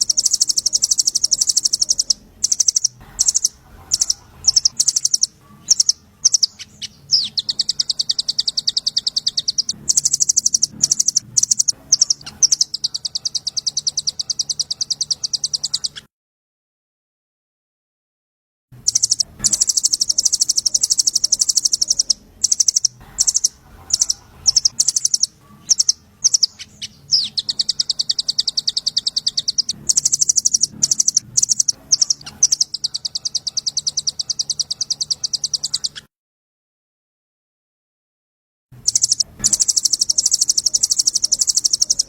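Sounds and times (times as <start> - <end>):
songbird ticking trill: 0.0 - 16.0, 18.8 - 36.0, 38.8 - 42.0.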